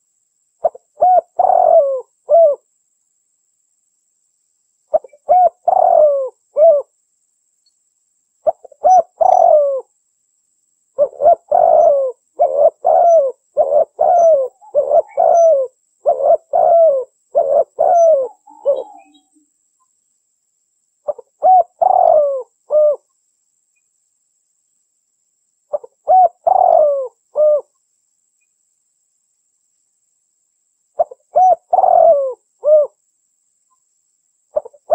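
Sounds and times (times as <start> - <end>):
dove cooing: 0.6 - 2.6, 4.9 - 6.9, 8.4 - 9.9, 11.0 - 19.3, 21.1 - 23.1, 25.7 - 27.7, 31.0 - 33.0, 34.5 - 34.9.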